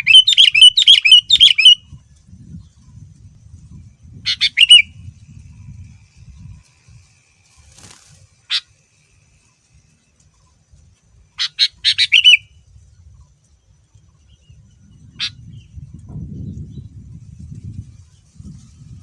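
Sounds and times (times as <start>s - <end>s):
bird calling sharp notes: 0.0s - 1.8s, 4.3s - 5.0s, 11.4s - 12.5s.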